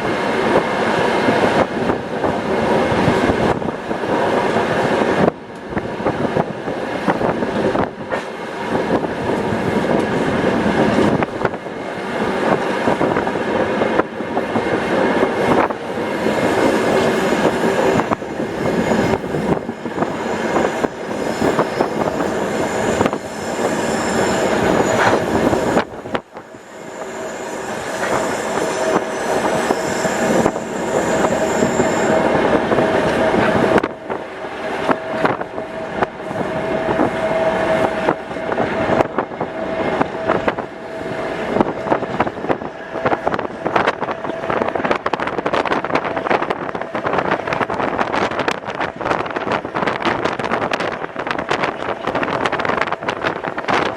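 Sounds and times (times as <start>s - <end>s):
train carriage rumble: 0.0s - 53.9s
high wheel squeal: 16.4s - 32.5s.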